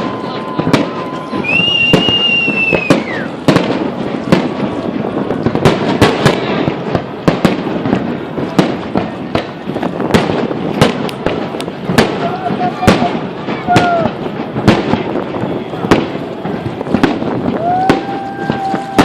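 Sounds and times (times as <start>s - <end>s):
high firework whistle: 0.0s - 4.6s, 15.4s - 19.0s
distant firework bursts rumbling: 0.0s - 19.0s
firework bangs and cracks: 0.0s - 19.0s.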